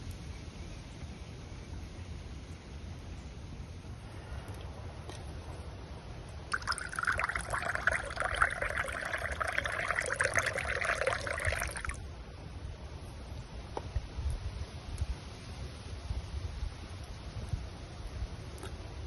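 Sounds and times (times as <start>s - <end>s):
water pouring into container: 6.5s - 12.0s.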